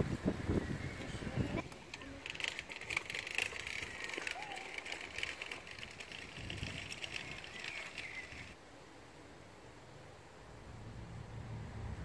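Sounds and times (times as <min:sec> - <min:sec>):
distant birds chirping: 0:06.7 - 0:08.6
high background hiss: 0:08.5 - 0:11.8.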